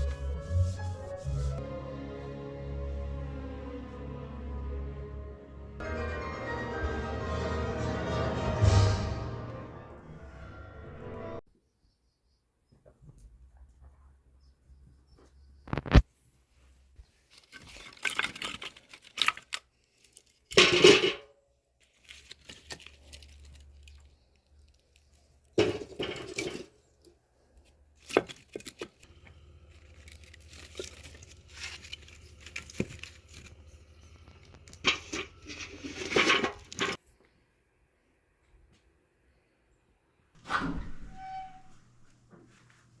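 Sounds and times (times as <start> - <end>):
paper tearing and crumpling: 21.8 - 24.8, 29.4 - 33.9.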